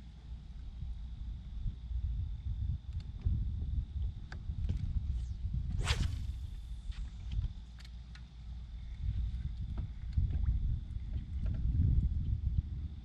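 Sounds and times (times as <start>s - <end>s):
wind rumble on microphone: 0.0s - 7.8s, 8.5s - 13.0s
fishing rod cast swishing: 5.8s - 6.5s.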